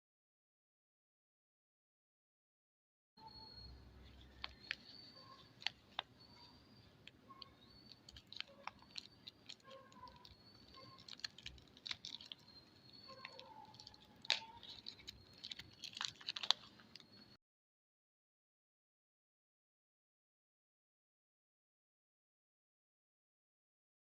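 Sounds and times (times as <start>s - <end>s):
soap packaging crinkling: 4.0s - 17.4s.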